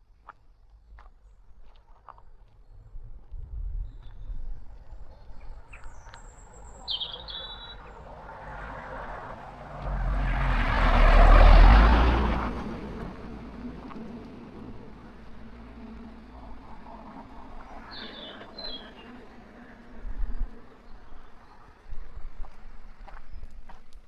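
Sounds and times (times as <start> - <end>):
vehicle passing by: 5.6 - 21.6
short bird chirps: 6.8 - 8.0.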